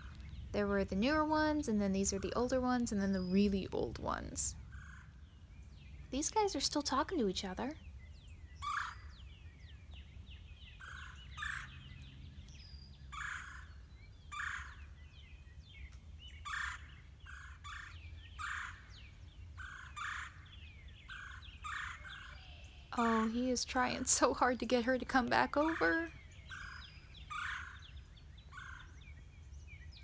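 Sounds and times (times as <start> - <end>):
songbirds high falling chirps: 0.0 - 30.0
birds' short harsh calls: 8.6 - 9.3, 10.8 - 11.8, 13.1 - 14.9, 16.4 - 29.0.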